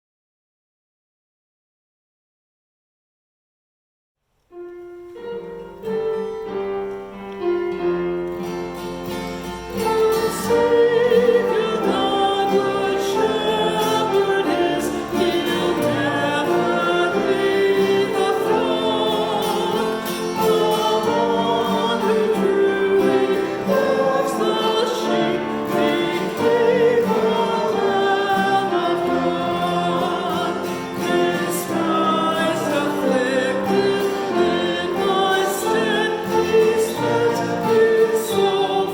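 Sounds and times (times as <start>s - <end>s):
choir singing: 9.7s - 38.9s.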